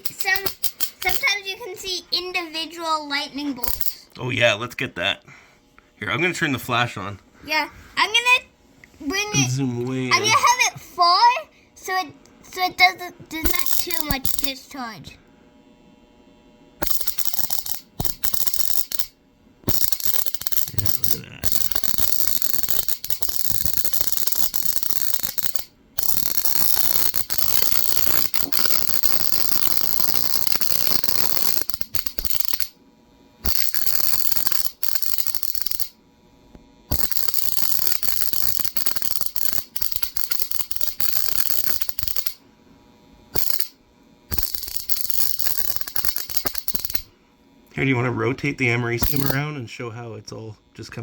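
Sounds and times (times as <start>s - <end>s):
high-voltage spark gap crackling: 0.0s - 2.0s, 3.5s - 4.1s, 13.4s - 14.7s, 16.8s - 32.8s, 33.4s - 36.0s, 36.9s - 42.4s, 43.3s - 47.1s, 48.9s - 49.5s.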